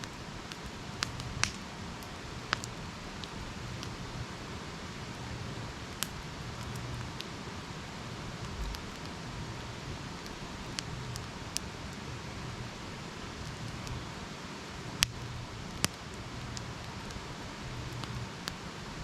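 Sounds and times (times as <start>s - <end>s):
campfire crackles and pops: 0.0s - 19.0s
campfire hissing: 0.0s - 19.0s.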